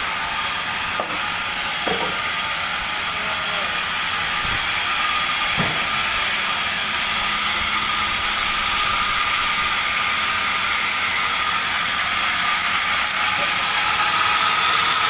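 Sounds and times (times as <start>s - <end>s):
band saw cutting a log: 0.0s - 15.0s.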